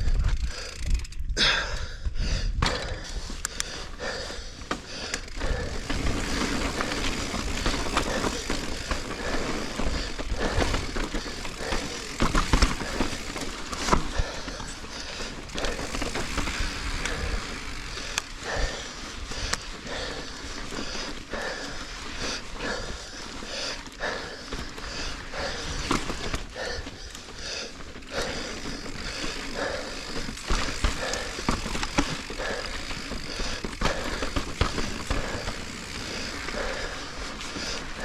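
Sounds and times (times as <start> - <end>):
bike rattling over bumps: 0.0 - 38.0.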